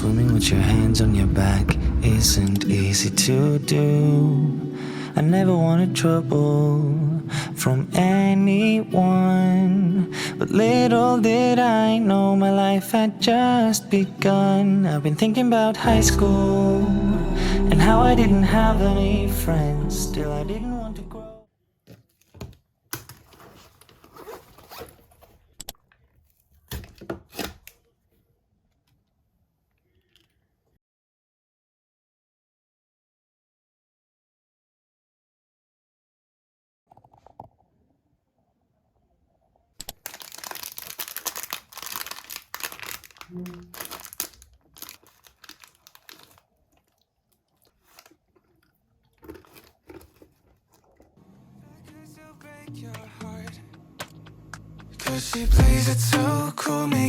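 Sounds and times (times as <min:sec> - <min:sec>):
packaging crinkling and rustling: 0:21.9 - 0:27.9, 0:39.8 - 0:51.2
zipper being pulled: 0:23.4 - 0:25.4.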